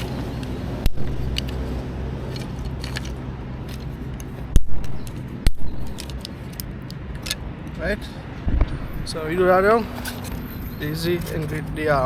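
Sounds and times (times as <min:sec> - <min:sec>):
dry sticks clicking and scraping: 0:00.0 - 0:07.8, 0:09.9 - 0:11.8
low steady hum: 0:00.0 - 0:10.9
sticks cracking: 0:00.8 - 0:01.7, 0:02.3 - 0:07.4.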